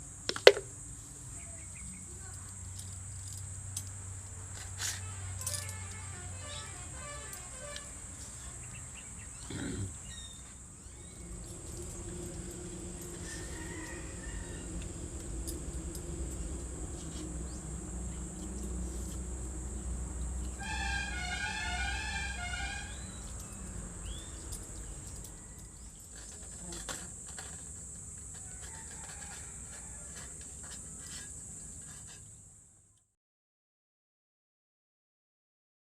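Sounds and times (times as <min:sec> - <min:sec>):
insects droning: 0:00.0 - 0:32.9
steady low hum: 0:05.4 - 0:27.2.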